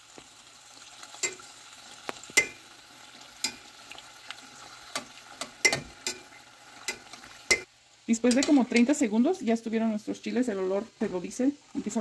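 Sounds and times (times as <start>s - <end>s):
chiles sizzling in oil: 0.0s - 12.0s
metal tongs clacking on pot: 1.2s - 1.4s, 2.4s - 2.6s, 3.4s - 3.7s, 4.9s - 9.0s.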